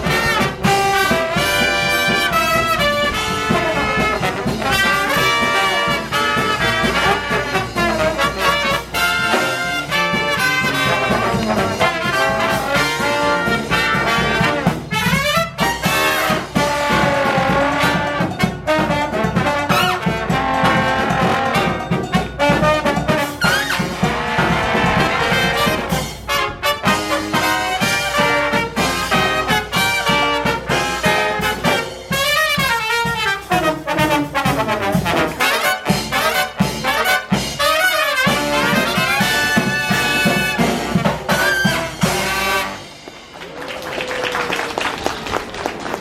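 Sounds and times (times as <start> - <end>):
brass band playing jazzy tune: 0.0 - 46.0.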